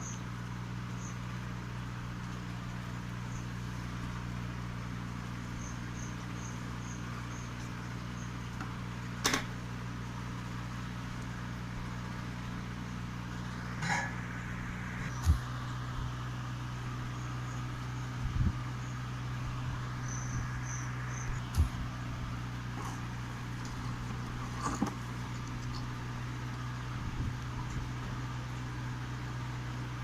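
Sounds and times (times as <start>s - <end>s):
cricket chirping: 0.0s - 0.3s, 0.9s - 1.3s, 3.1s - 3.7s, 4.7s - 8.5s, 16.9s - 26.8s
low electrical hum: 0.0s - 30.0s.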